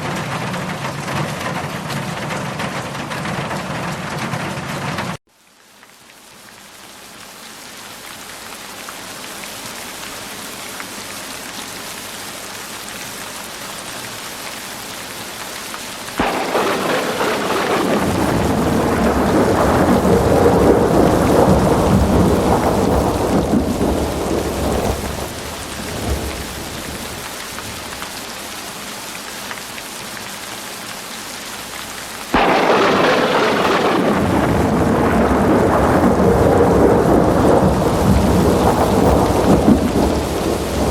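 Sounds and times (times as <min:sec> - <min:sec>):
heavy rain: 0:00.0 - 0:40.9
thunder rumble: 0:16.2 - 0:28.2, 0:32.3 - 0:40.9.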